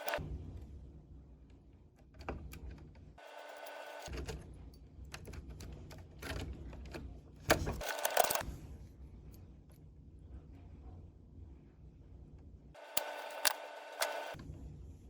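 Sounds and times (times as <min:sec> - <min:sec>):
small clicks and taps on wiring: 0:12.9 - 0:14.4.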